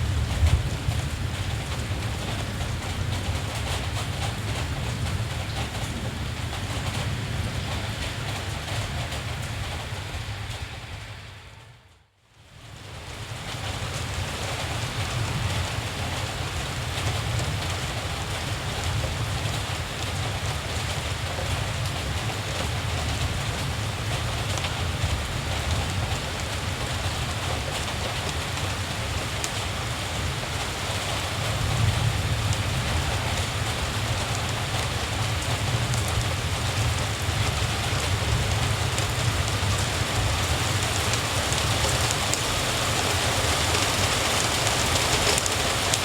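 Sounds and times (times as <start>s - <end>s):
steady rainfall: 0.0s - 46.0s
low rumble: 8.4s - 12.1s.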